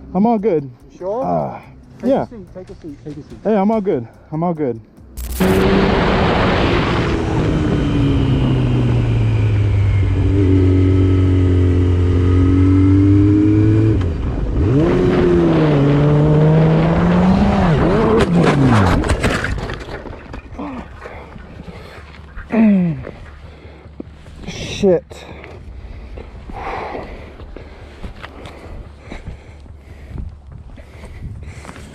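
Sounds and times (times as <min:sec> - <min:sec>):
motorcycle engine at high revs: 0:05.2 - 0:18.9.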